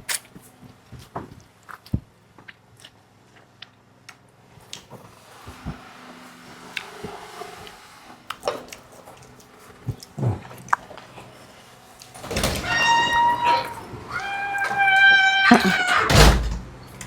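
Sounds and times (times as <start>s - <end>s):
person chewing: 1.6s - 4.8s, 8.3s - 11.2s.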